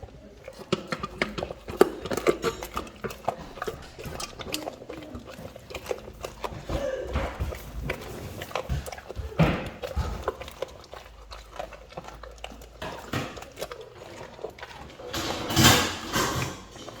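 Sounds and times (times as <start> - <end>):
dog chewing fish: 0.0 - 17.0.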